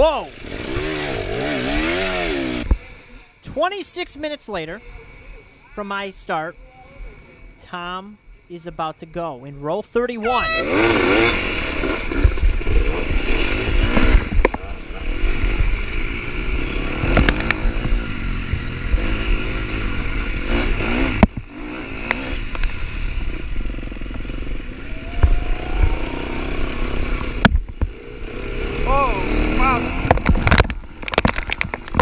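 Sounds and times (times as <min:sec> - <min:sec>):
dirt bike engine revving: 0:00.0 - 0:03.6, 0:10.2 - 0:32.0.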